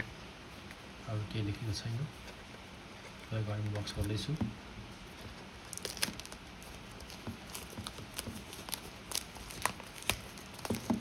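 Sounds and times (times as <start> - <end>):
shrink wrap tearing: 5.6 - 10.9.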